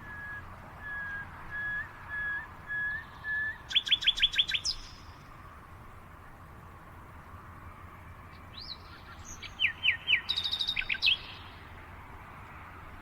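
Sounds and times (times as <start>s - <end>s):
songbird chirping and trilling: 0.0s - 5.2s, 8.5s - 11.6s.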